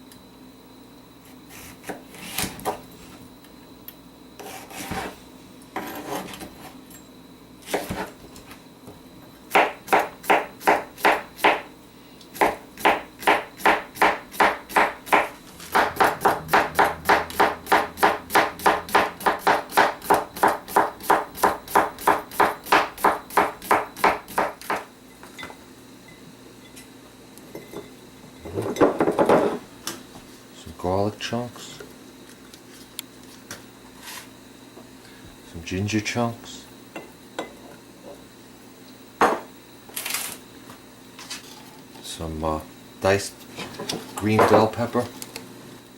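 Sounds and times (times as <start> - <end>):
knife chopping on cutting board: 7.7 - 8.1, 9.5 - 11.7, 12.4 - 24.9.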